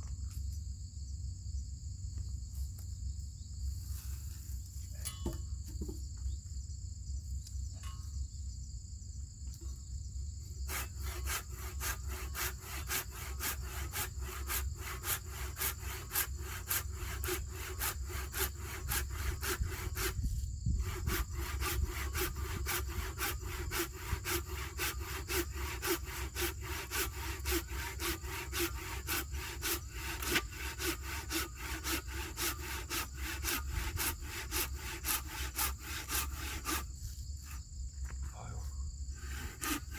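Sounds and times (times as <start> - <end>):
insects trilling: 0.0 - 39.9
hand saw cutting wood: 10.6 - 37.6, 39.1 - 39.9.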